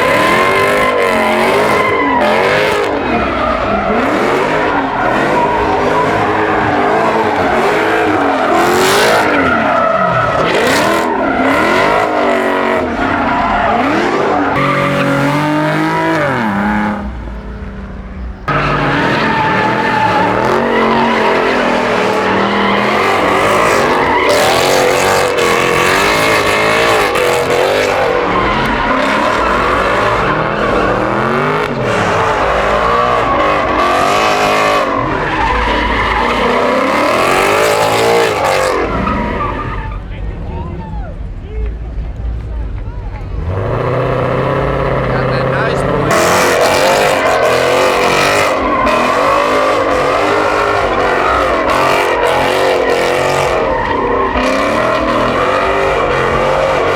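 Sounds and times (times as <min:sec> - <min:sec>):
car engine revving hard: 0:00.0 - 0:17.2, 0:18.5 - 0:39.7, 0:43.3 - 0:56.9
tyres squealing and skidding: 0:00.0 - 0:41.6, 0:42.9 - 0:56.9.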